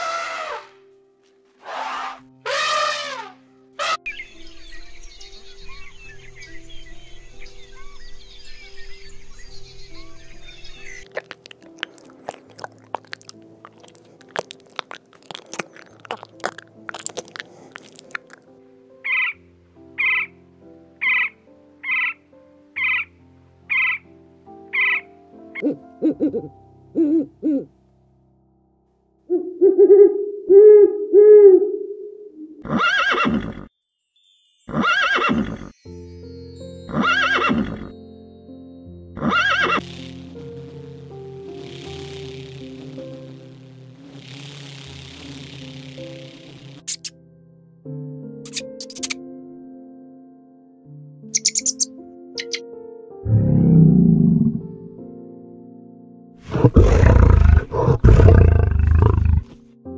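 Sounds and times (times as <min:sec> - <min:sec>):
horse whinnying: 0:00.0 - 0:00.8, 0:01.6 - 0:04.0, 0:32.6 - 0:33.7, 0:34.7 - 0:35.7, 0:36.9 - 0:37.9, 0:39.2 - 0:39.8, 0:56.5 - 0:59.5
soft background music: 0:00.0 - 0:59.9
owl hooting: 0:01.6 - 0:04.1, 0:19.0 - 0:19.4, 0:20.0 - 0:20.3, 0:21.0 - 0:22.2, 0:22.8 - 0:23.1, 0:23.7 - 0:24.0, 0:24.7 - 0:27.7, 0:29.3 - 0:33.6, 0:51.3 - 0:52.6
snail crunching a leaf: 0:11.0 - 0:18.5, 0:56.5 - 0:59.6.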